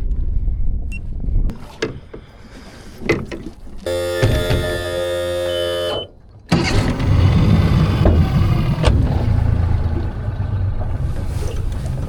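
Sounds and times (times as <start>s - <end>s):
water noise: 1.5s - 12.0s
boat motor running: 3.8s - 12.0s
rushing wind: 6.6s - 12.0s.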